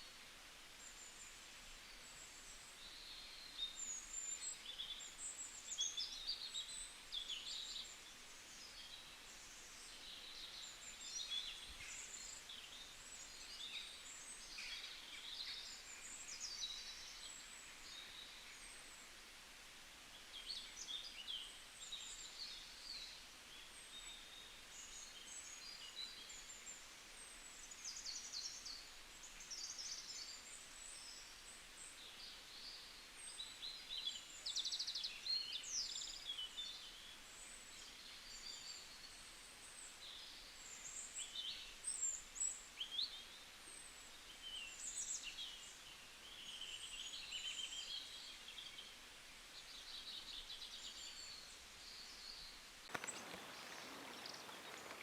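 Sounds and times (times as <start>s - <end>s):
birds singing and chirping: 49.8s - 55.0s.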